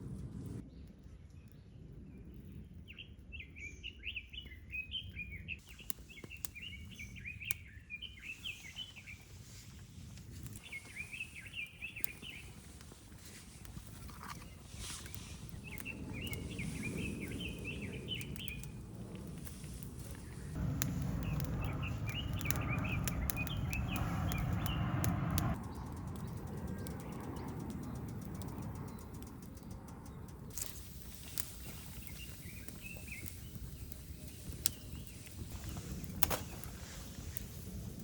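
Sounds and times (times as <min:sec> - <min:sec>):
small birds chirping: 0:00.6 - 0:38.0
campfire crackling: 0:05.6 - 0:38.0
low rumble: 0:13.6 - 0:31.0.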